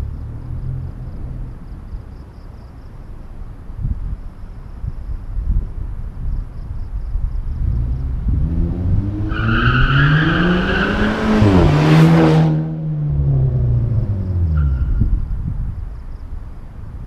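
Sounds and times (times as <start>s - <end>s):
car engine accelerating: 0.0s - 2.2s, 7.4s - 15.8s.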